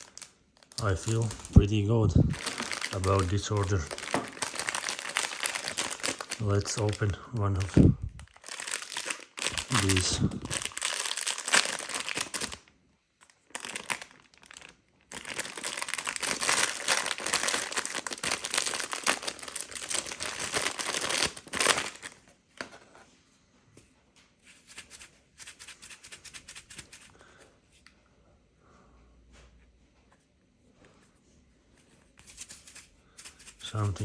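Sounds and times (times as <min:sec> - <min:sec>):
packaging wrapper crumpling and tearing: 0:00.0 - 0:22.2.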